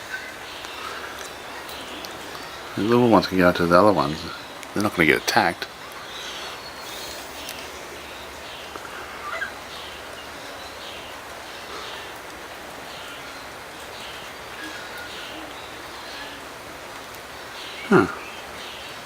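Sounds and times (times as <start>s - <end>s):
high falling bird chirp: 0.0s - 16.5s
steady background hiss: 0.0s - 19.0s
lower bird call: 5.9s - 16.6s.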